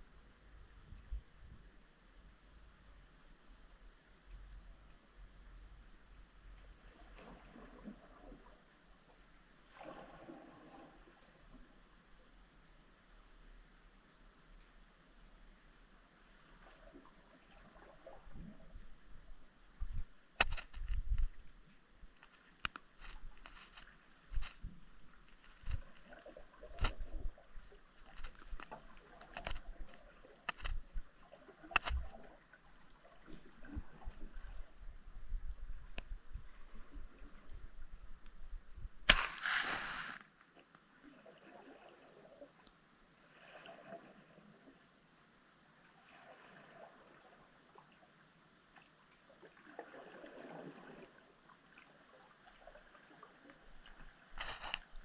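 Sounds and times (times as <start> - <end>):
faint low underwater rumble: 0.0 - 40.1
underwater clicks and knocks: 19.8 - 21.5, 25.4 - 27.4, 28.0 - 31.1, 31.7 - 32.4
small underwater clicks: 19.8 - 32.4, 35.8 - 36.4, 42.0 - 42.8, 52.5 - 55.0
water rush: 39.1 - 40.2
underwater hiss: 39.1 - 40.3.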